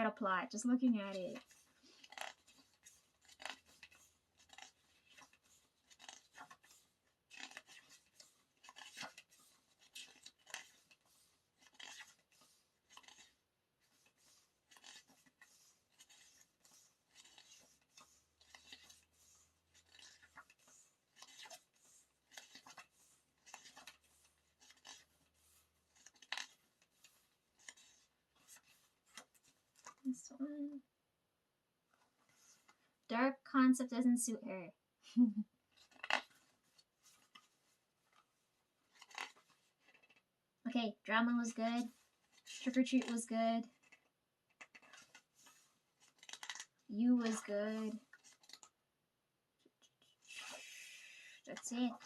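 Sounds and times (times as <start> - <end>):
paper pages rustling and clicking: 1.0 - 30.2, 35.7 - 40.3, 41.4 - 48.8, 51.4 - 52.0.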